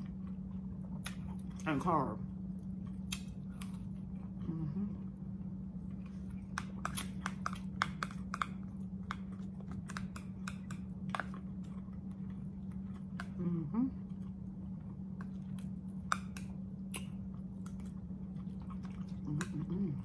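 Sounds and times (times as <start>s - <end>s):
chewing with wet mouth clicks: 0.0s - 1.6s, 2.5s - 4.4s, 5.8s - 13.4s, 14.0s - 20.0s
low hum: 0.0s - 20.0s
lip smacks: 3.0s - 3.8s, 16.1s - 17.9s.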